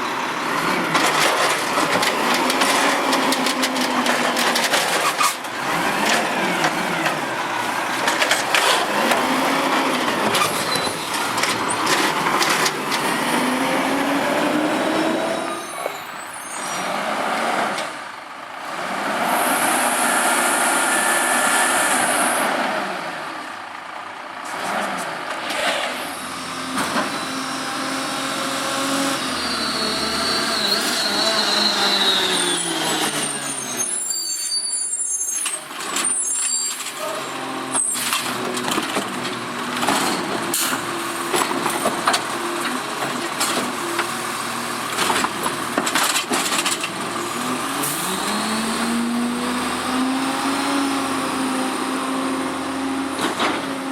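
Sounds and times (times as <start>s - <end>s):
garbage truck engine revving: 0.0s - 34.0s, 37.1s - 53.9s
clattering knocks of load dumping: 0.6s - 13.6s, 38.0s - 44.2s, 44.8s - 49.0s.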